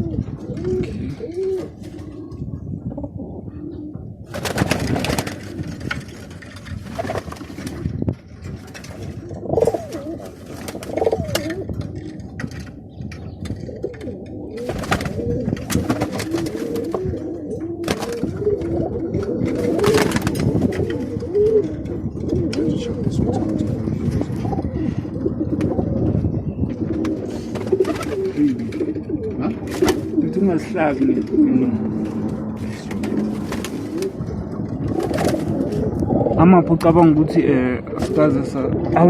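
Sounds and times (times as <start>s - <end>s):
pigeons cooing: 0.0s - 39.0s
rustling bursts: 4.3s - 7.9s.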